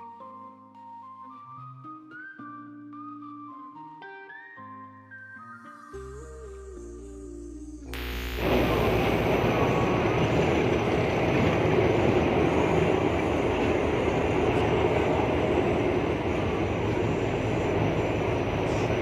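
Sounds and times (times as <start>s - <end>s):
train wheels rumbling on rails: 9.2s - 19.0s.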